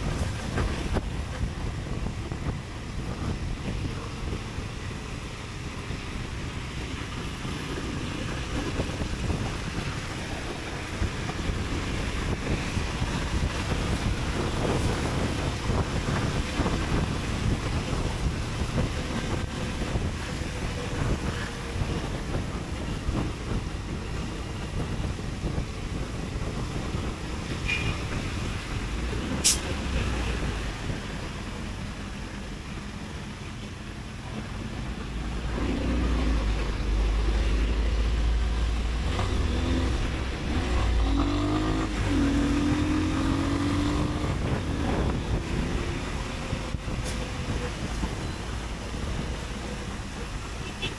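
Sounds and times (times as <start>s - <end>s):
wind and road noise: 0.0s - 50.9s
motorcycle engine accelerating: 39.0s - 47.0s.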